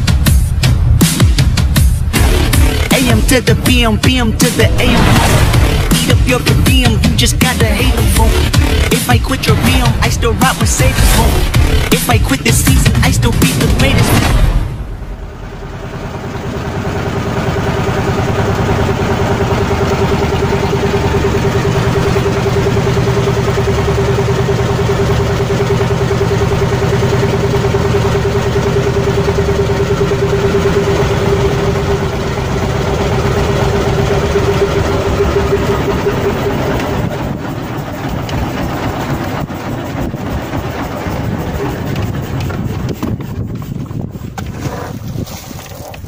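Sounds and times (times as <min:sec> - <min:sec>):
boat engine drone: 0:00.0 - 0:46.0
steady whine: 0:00.5 - 0:45.7.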